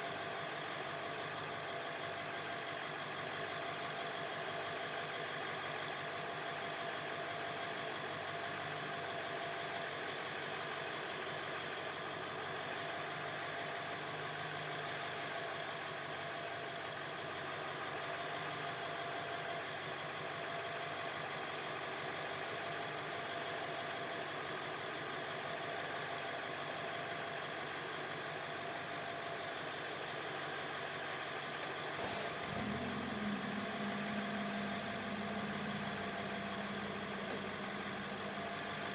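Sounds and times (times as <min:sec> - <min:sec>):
truck engine idling: 0:30.1 - 0:38.9
deeper engine note: 0:32.1 - 0:38.9.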